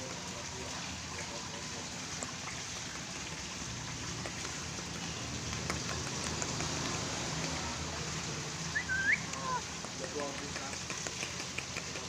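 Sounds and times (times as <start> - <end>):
steady rain-like hiss: 0.0 - 12.0
bird whistling gliding note: 8.8 - 9.3.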